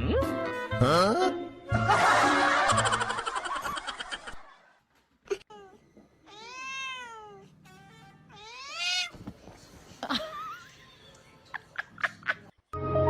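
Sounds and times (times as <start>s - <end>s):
cat meowing: 5.5s - 9.2s.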